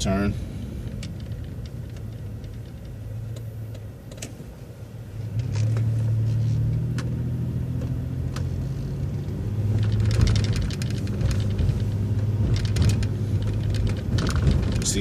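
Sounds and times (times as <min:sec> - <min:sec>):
bus engine drone: 0:00.0 - 0:15.0
light clicks and rattles: 0:00.8 - 0:04.4, 0:09.7 - 0:15.0.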